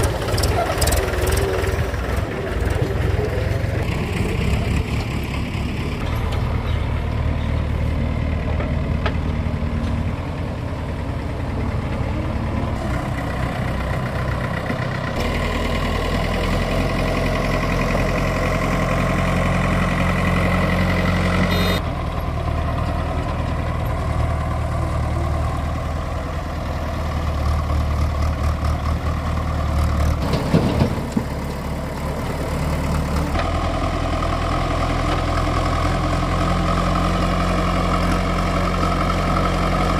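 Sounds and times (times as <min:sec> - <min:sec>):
heavy diesel machinery running: 0:00.0 - 0:39.9
clatter of knocks: 0:30.2 - 0:31.4.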